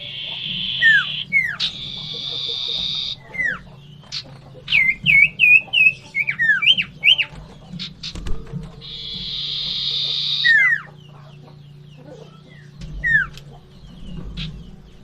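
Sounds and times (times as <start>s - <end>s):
bird whistled notes: 0.0s - 3.8s, 4.7s - 7.3s, 8.8s - 11.2s
bird harsh buzzy churr: 0.0s - 7.2s, 8.8s - 11.0s.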